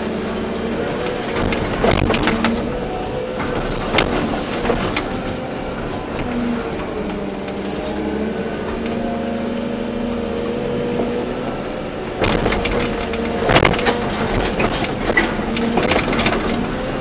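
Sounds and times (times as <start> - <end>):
excavator diesel engine and hydraulics: 0.0 - 17.0
sharp knocks: 1.0 - 7.6, 12.2 - 17.0.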